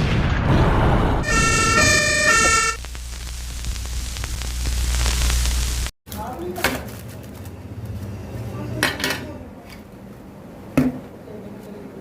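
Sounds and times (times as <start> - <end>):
two-tone siren sound effect: 1.2 - 2.8.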